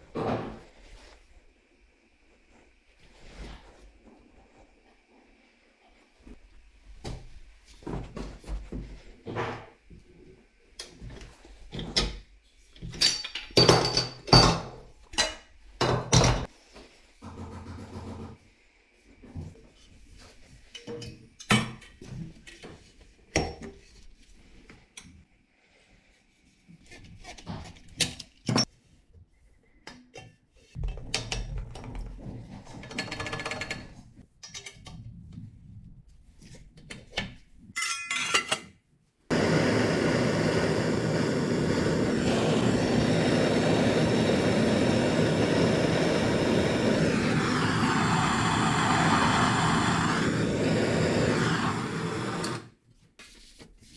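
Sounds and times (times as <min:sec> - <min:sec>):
metal clinking on metal: 0:37.8 - 0:38.6
blowtorch roaring: 0:39.3 - 0:52.7.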